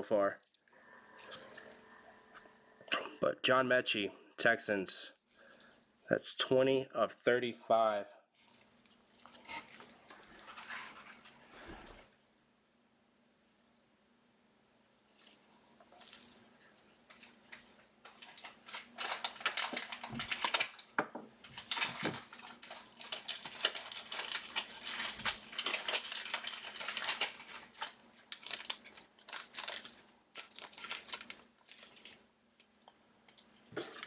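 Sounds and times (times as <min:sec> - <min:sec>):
plastic and foil packaging crinkling: 0:00.2 - 0:02.0, 0:08.4 - 0:11.4, 0:15.1 - 0:34.0.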